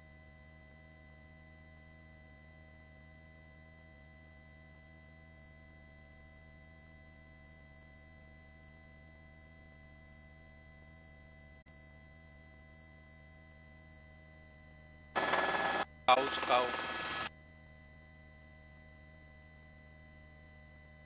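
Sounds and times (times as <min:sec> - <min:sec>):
faint steady hum: 0:15.2 - 0:17.3.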